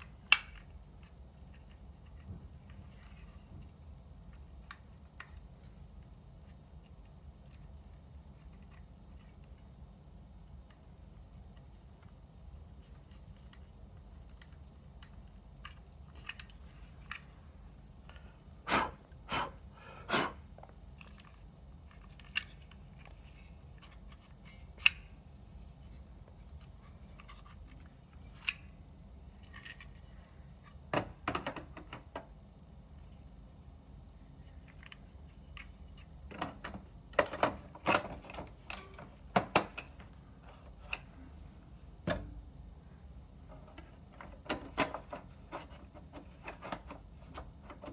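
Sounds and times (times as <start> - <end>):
small parts and tools clicking: 0.0 - 18.3, 20.6 - 32.4, 34.4 - 41.1.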